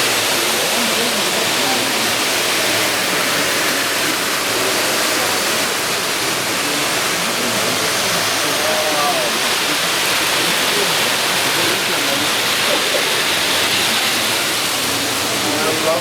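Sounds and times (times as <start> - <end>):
faint voices: 0.0 - 16.0
steady hiss: 0.0 - 16.0.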